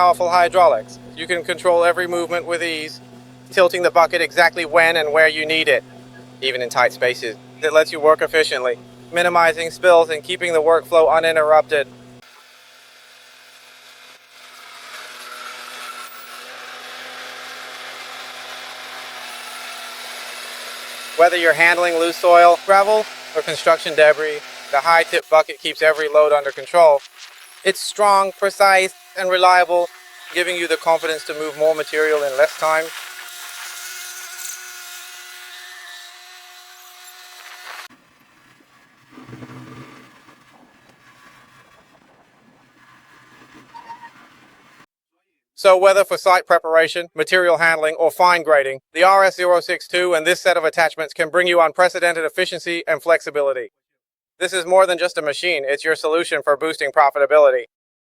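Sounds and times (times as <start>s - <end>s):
faint low engine hum: 0.0s - 12.2s
loader machine whine: 0.0s - 12.4s, 15.1s - 44.8s
engine and hydraulic hum: 0.0s - 44.9s
harsh raspy noise: 21.0s - 33.0s.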